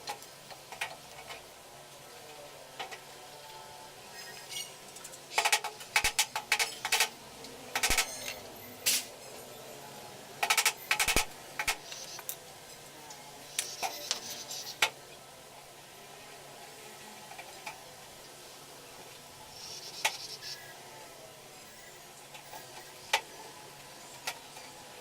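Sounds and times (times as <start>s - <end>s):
tools clicking and clattering: 4.5s - 7.1s, 7.8s - 9.1s.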